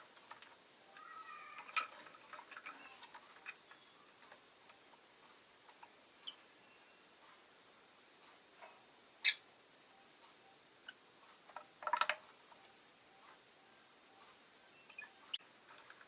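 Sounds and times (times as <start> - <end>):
lovebird chirping: 2.7 - 4.2, 6.2 - 7.2, 9.2 - 11.0, 12.6 - 15.4.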